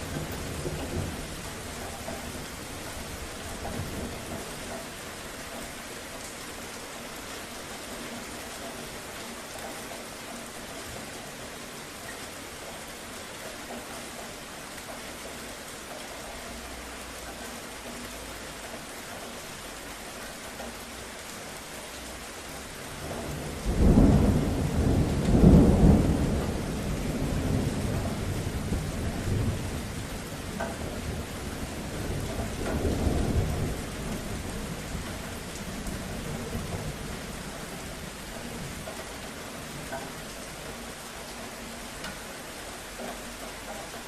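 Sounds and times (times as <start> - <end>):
thunder rumbling: 0.0 - 4.7, 22.9 - 39.9
steady rain hissing: 0.0 - 44.0.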